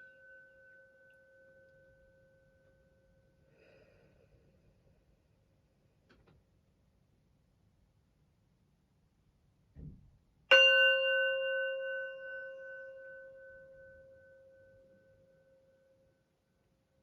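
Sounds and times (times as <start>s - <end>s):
singing bowl ringing: 0.0s - 3.0s, 10.5s - 16.3s.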